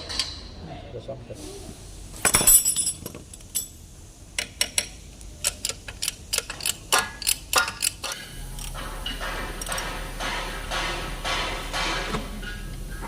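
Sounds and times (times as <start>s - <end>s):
low hum with hiss: 0.0s - 13.0s
sharp metallic clicks and taps: 4.4s - 11.4s.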